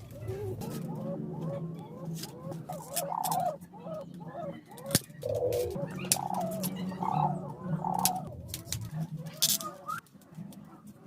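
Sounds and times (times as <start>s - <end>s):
birds calling: 0.0s - 11.0s.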